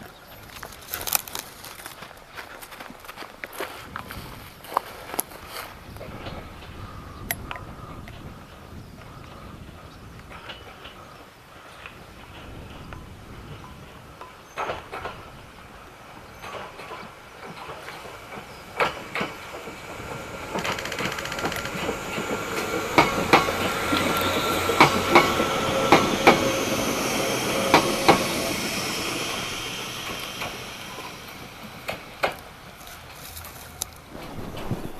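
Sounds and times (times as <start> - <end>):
wheels clacking over rail joints: 3.4 - 34.9
electric train passing: 4.8 - 34.9
steady whine: 14.8 - 34.9.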